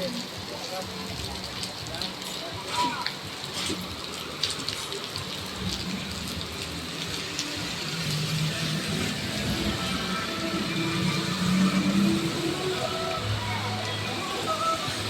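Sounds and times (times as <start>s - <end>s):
raindrops striking nearby surfaces: 0.0s - 15.0s
steady rain falling: 0.0s - 15.0s.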